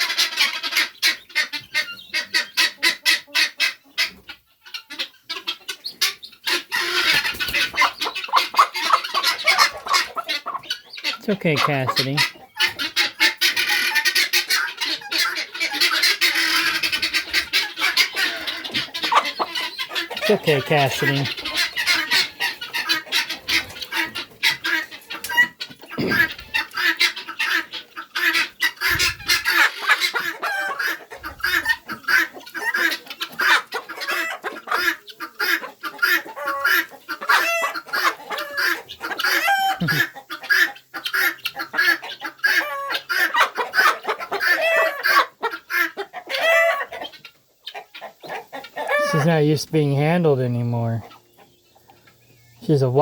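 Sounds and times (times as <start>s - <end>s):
hen clucking: 0.0s - 53.0s.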